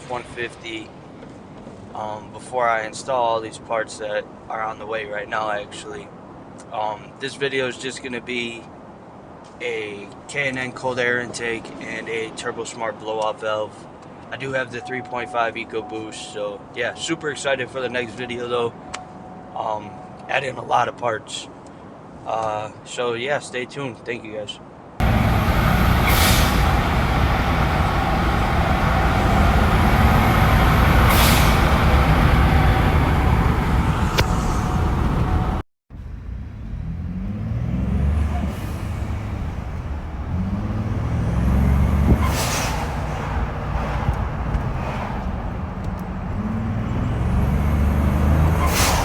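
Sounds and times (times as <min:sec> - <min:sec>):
truck engine under throttle: 0:25.0 - 0:49.0
blow-off valve hiss: 0:25.9 - 0:32.1, 0:48.6 - 0:49.0.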